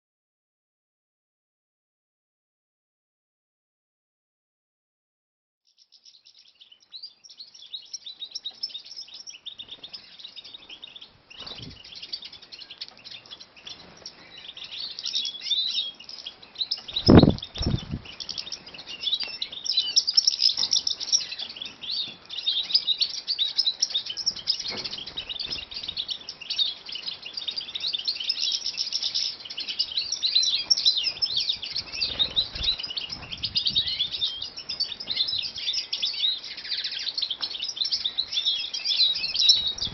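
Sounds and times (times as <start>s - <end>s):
finches twittering: 10.8s - 39.9s.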